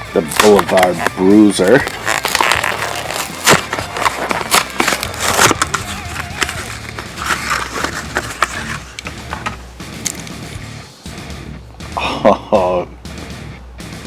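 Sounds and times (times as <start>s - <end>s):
blister pack being torn open: 0.2s - 10.4s.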